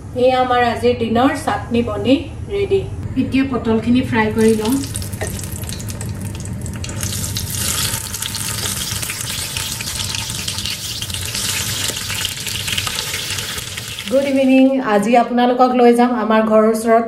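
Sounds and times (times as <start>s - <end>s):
steady low hum: 0.0s - 17.0s
vegetables sizzling in hot oil: 4.4s - 14.6s.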